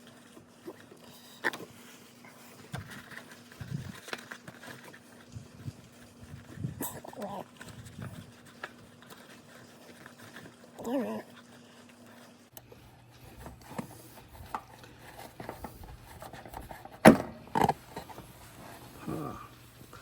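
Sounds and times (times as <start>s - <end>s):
dog whining: 10.8s - 11.4s.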